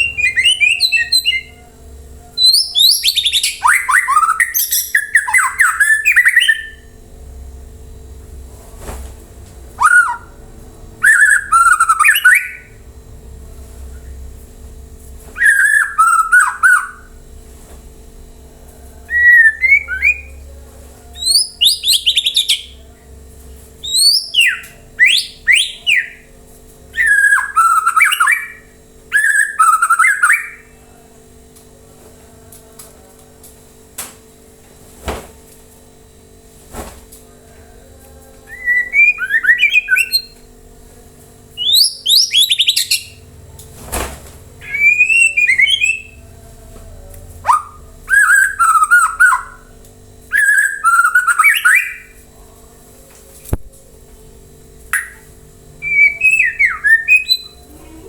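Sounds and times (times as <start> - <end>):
bird singing whistled phrases: 0.0 - 1.7, 2.3 - 6.9, 9.8 - 10.4, 11.0 - 12.8, 15.4 - 17.2, 19.1 - 20.4, 21.2 - 22.8, 23.8 - 26.3, 26.9 - 30.8, 38.5 - 40.4, 41.6 - 43.2, 44.6 - 46.3, 47.5 - 49.7, 50.3 - 52.1, 55.0 - 57.7.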